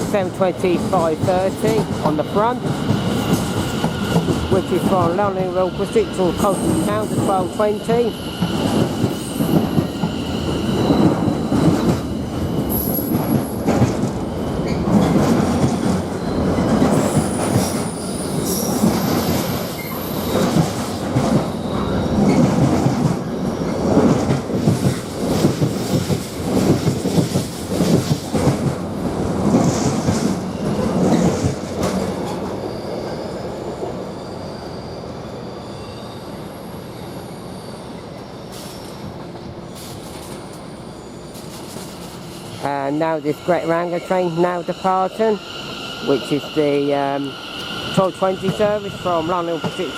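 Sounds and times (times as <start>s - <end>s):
train wheels clattering over rails: 0.0s - 5.5s, 8.4s - 32.7s
wheels and brakes squealing: 5.8s - 13.7s, 14.3s - 15.2s, 16.2s - 20.6s, 32.2s - 39.0s, 39.7s - 49.9s.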